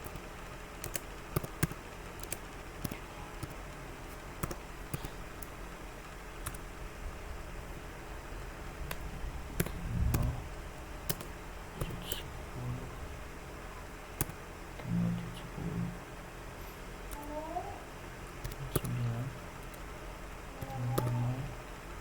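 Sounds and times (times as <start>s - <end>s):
computer keyboard clicks: 0.0s - 3.6s, 4.4s - 5.6s, 6.4s - 6.6s, 11.1s - 12.2s, 14.2s - 14.4s, 18.3s - 19.0s, 20.6s - 21.3s
low electrical hum: 0.0s - 22.0s.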